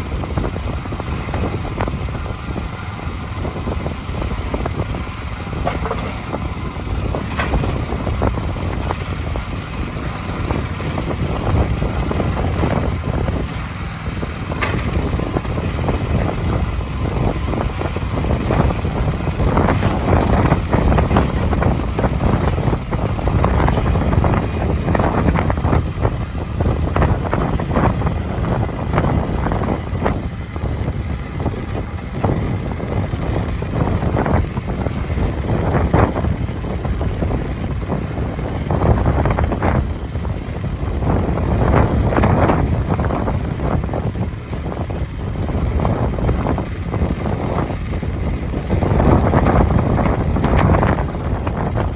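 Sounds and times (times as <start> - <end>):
excavator engine rumble: 0.0 - 51.9
metal clanks and knocks: 9.4 - 16.7.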